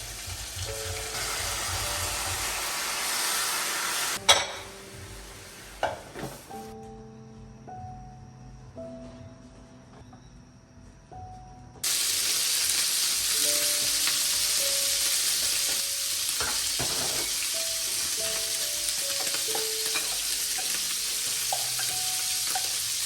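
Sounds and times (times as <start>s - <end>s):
sizzling hiss: 0.0s - 6.7s, 11.8s - 23.0s
soft background music: 0.0s - 23.0s.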